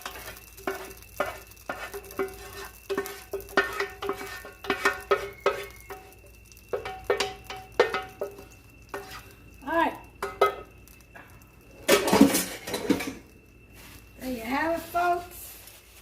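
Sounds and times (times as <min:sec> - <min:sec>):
metal utensil scraping a pot: 0:00.0 - 0:09.4.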